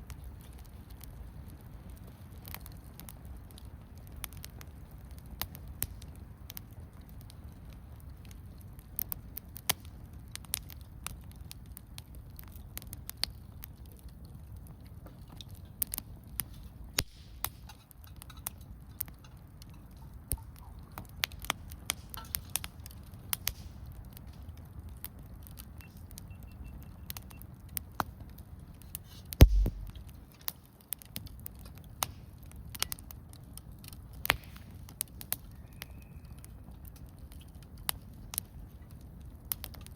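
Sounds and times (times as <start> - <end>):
campfire crackling and popping: 0.0 - 39.9
dull thump: 29.4 - 30.0
low steady rumble: 29.4 - 30.3.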